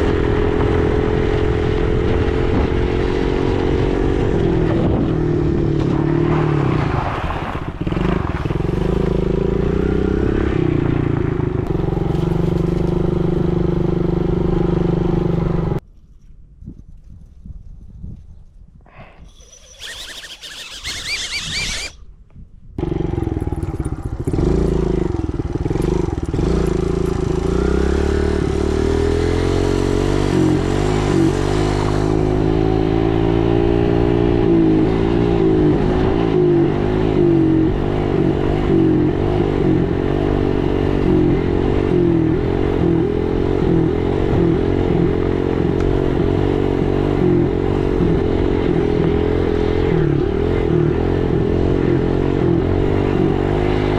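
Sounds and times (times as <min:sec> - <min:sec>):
dirt bike engine running: 0:07.8 - 0:15.8, 0:22.8 - 0:53.9.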